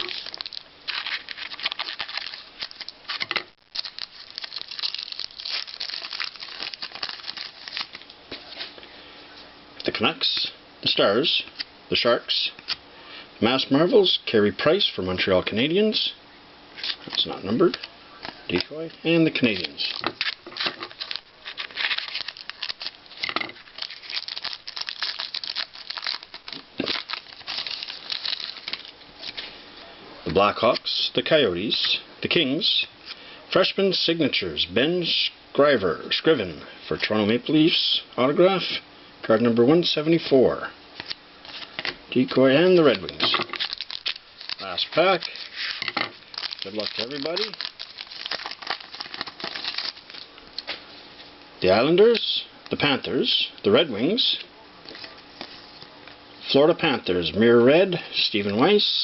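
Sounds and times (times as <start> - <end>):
foil wrapper tearing and crinkling: 0.0 - 8.1, 19.4 - 29.4, 42.7 - 50.7.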